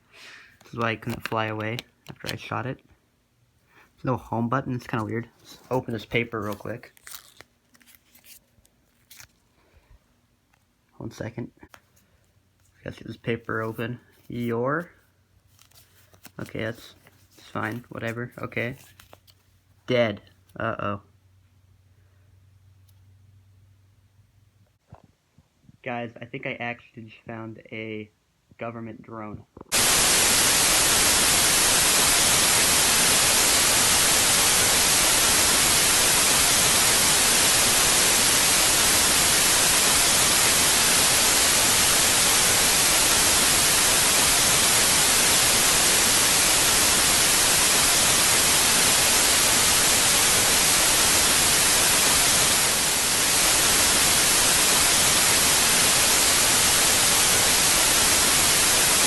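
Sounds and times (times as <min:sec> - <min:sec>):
static hiss: 0:29.5 - 0:59.0.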